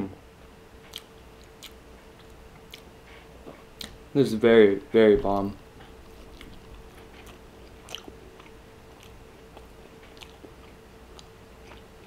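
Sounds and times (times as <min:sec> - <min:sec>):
person chewing: 0:00.8 - 0:04.0, 0:05.8 - 0:12.0
wet mouth clicks: 0:00.9 - 0:02.9, 0:06.3 - 0:10.5.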